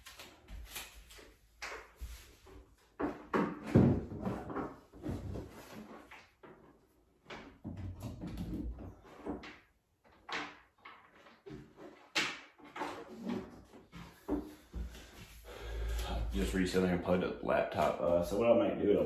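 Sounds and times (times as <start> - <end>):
objects knocked and handled: 2.9 - 15.3.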